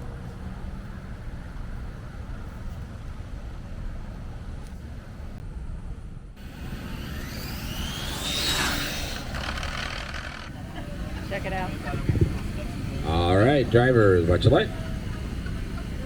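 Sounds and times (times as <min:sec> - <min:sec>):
low outdoor rumble: 0:00.0 - 0:16.0
electric motor whine rising: 0:06.4 - 0:16.0.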